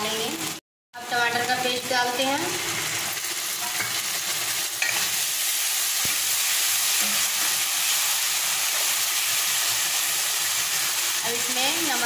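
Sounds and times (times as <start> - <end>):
paste sizzling in oil: 2.4 - 12.0.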